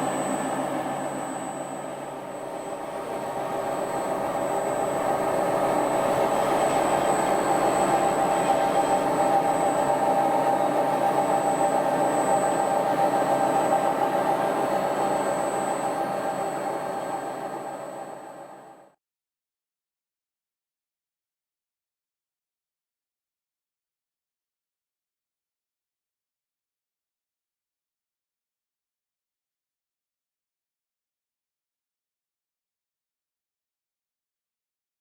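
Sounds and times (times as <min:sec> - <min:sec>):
milling machine hum and whine: 0:00.0 - 0:18.9.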